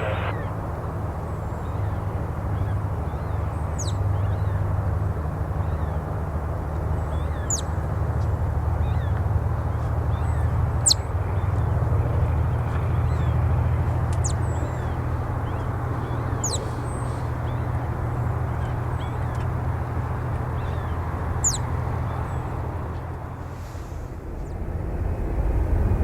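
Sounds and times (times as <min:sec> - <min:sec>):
bird twittering: 0:00.0 - 0:00.5, 0:10.0 - 0:22.9
distant jet engines rumbling: 0:00.0 - 0:26.0
bird chirping: 0:10.1 - 0:22.8.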